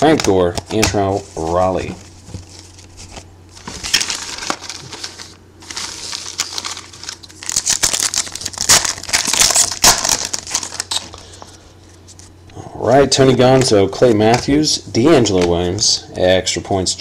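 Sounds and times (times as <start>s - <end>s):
plastic foil wrapper crinkling: 1.2s - 11.4s.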